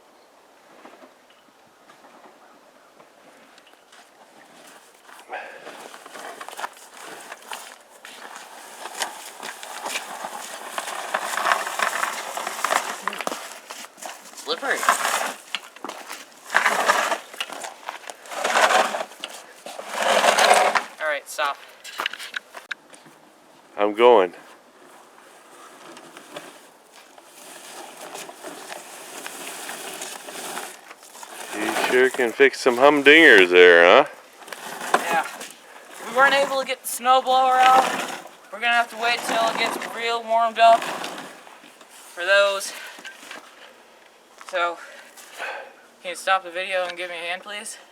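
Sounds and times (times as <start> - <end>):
crunching and scraping in snow: 4.0 - 22.6, 24.5 - 43.6.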